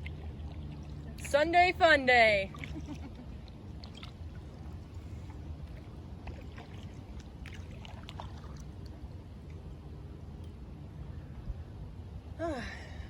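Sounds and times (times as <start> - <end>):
paddle splashes and drips: 0.0 - 1.4, 2.5 - 9.6
steady low rumble: 0.0 - 13.0.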